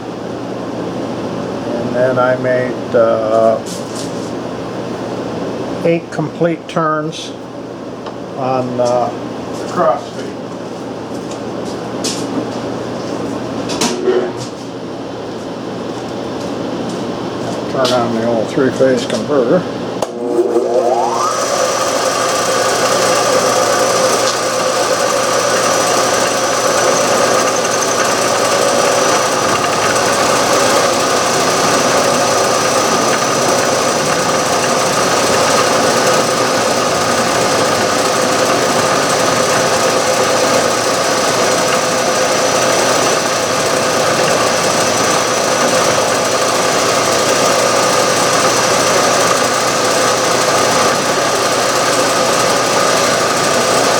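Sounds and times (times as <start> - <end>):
milling machine whine: 18.2 - 53.9
milling metal: 20.1 - 46.2.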